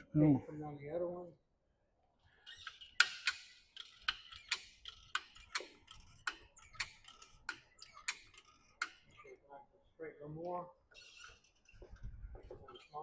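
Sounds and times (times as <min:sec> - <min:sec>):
hoist ratchet clicking: 0:02.4 - 0:09.2.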